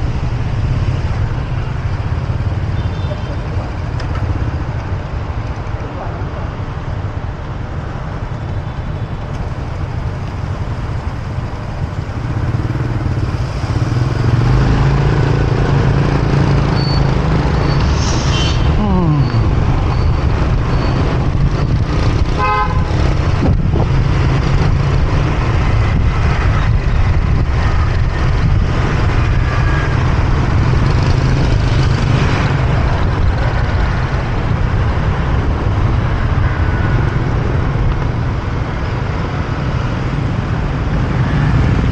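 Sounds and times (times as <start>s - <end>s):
motorbike engine and road noise: 0.0s - 41.9s
vehicle horn honking: 22.4s - 22.9s.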